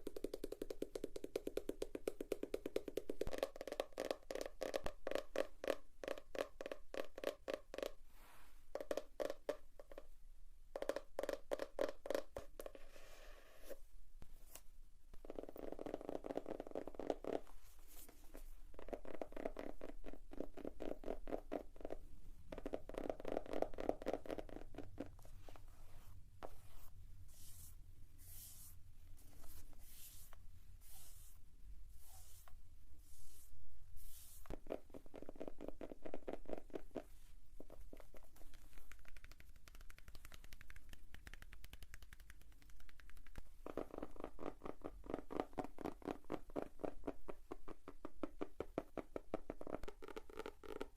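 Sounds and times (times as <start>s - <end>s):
fingers tapping on notebook covers: 0.0s - 7.8s, 37.7s - 46.1s.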